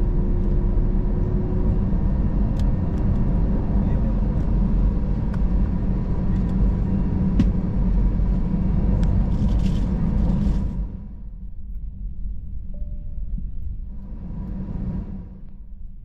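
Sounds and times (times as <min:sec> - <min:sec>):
low rumble of aircraft cabin: 0:00.0 - 0:16.0
faint constant tone: 0:11.0 - 0:16.0.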